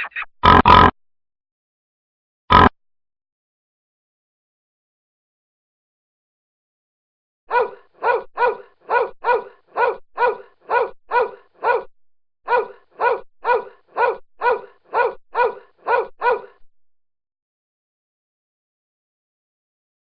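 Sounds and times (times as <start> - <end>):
dog barking: 7.5 - 11.9, 12.5 - 16.6.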